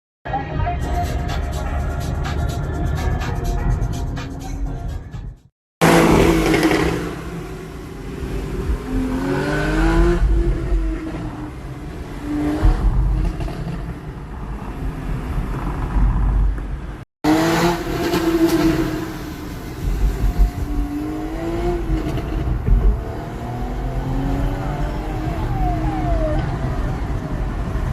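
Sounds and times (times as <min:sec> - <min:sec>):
car engine accelerating hard: 0:05.8 - 0:16.4, 0:17.3 - 0:27.9.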